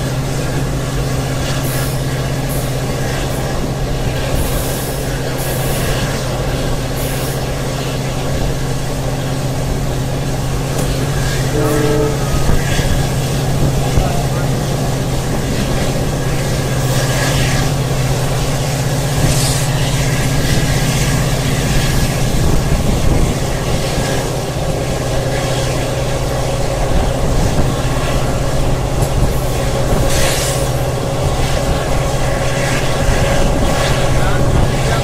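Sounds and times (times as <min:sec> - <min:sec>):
train rumbling on rails: 0:00.0 - 0:35.0
brief hissy rushes: 0:19.2 - 0:19.8, 0:29.4 - 0:30.9.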